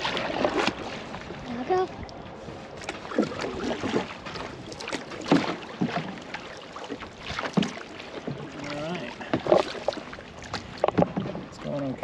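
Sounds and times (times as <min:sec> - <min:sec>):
paddle strokes splashing in water: 0:00.0 - 0:12.0.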